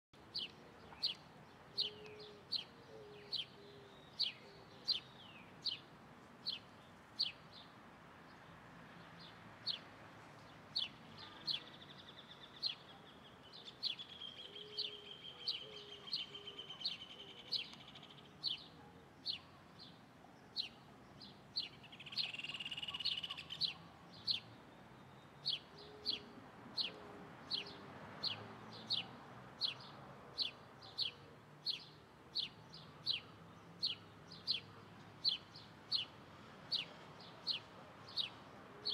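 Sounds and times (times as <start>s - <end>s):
small bird chirping: 21.6s - 24.5s.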